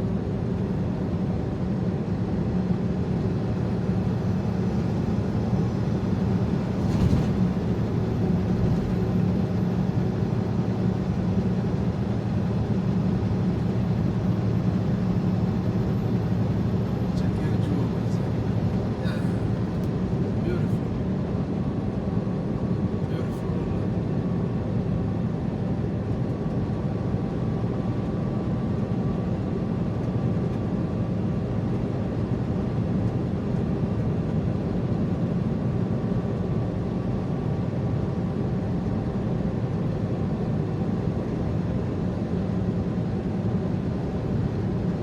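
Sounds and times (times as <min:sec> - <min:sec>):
truck engine and tyre drone: 0:00.0 - 0:34.8.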